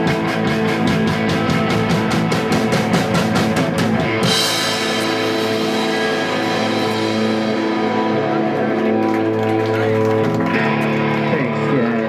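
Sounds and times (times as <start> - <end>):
fast drum beat: 0.0 - 9.3
distorted guitar: 0.0 - 12.0
cymbal crash: 4.2 - 8.4.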